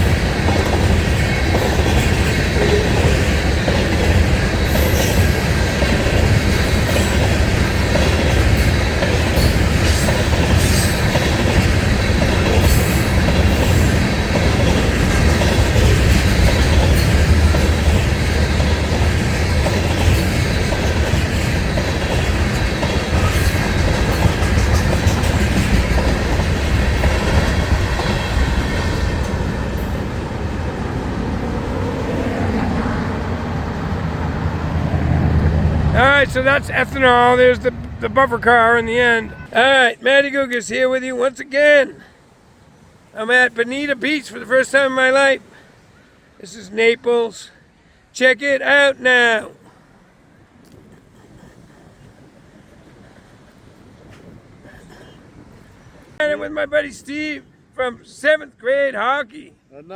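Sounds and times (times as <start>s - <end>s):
wheels clattering over rail joints: 0.0s - 32.5s
wheels rumbling on rail: 0.0s - 40.6s, 48.8s - 57.7s
freight train rolling past: 0.0s - 59.9s.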